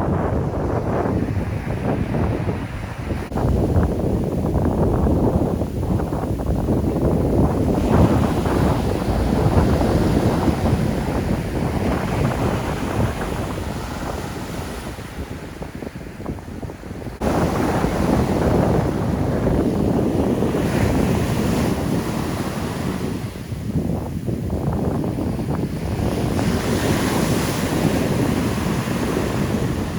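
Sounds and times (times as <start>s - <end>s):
heavy surf breaking: 0.0s - 29.9s
wind buffeting microphone: 0.0s - 29.9s.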